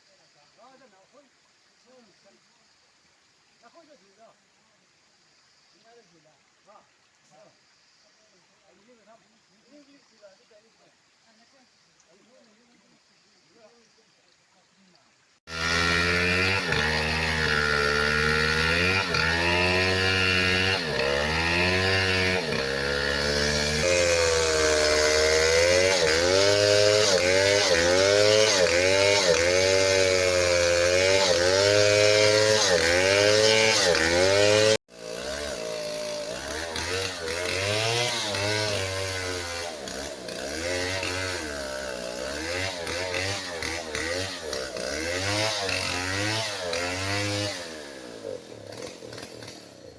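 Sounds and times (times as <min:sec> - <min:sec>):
chainsaw cutting into tree: 0:15.5 - 0:49.9.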